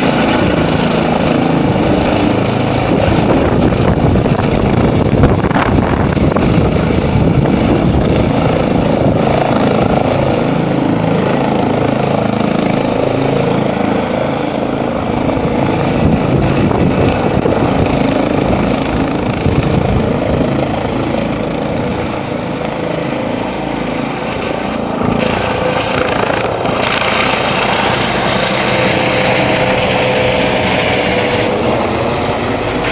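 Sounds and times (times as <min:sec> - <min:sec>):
helicopter rotor and engine: 0:00.0 - 0:32.9.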